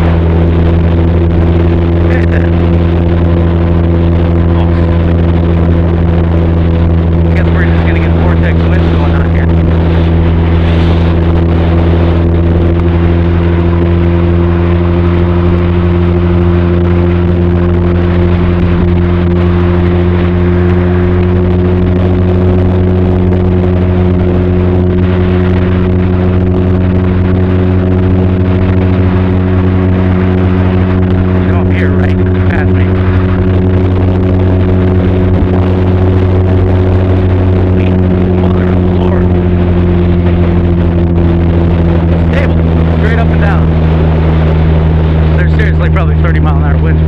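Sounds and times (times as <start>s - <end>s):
motorcycle engine cruising: 0.0s - 47.0s.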